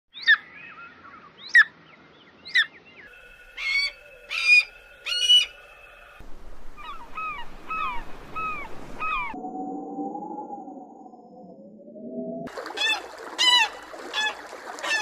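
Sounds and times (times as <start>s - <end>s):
wild bird calls: 2.4s - 9.4s.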